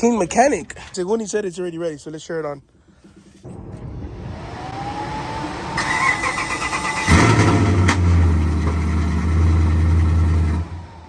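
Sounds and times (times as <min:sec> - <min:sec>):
truck engine starter cranking: 0:05.8 - 0:08.2.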